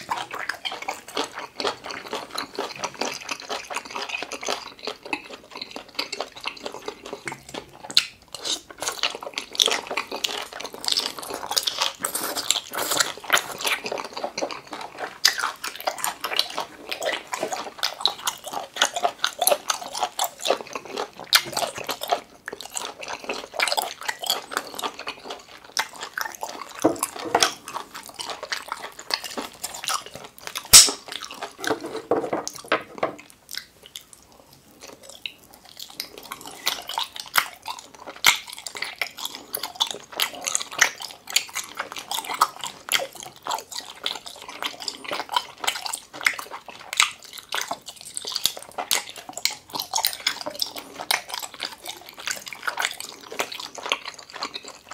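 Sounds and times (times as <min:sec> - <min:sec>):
person chewing with smacking: 0:00.0 - 0:54.9
sharp mouth click: 0:30.8 - 0:31.0.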